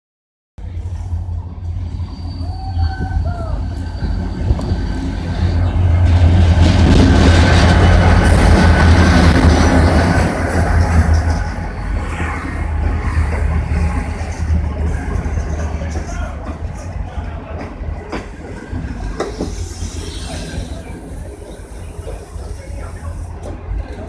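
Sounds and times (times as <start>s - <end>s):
coaches rolling on rails: 0.6s - 24.0s
diesel locomotive rumble: 0.6s - 24.0s.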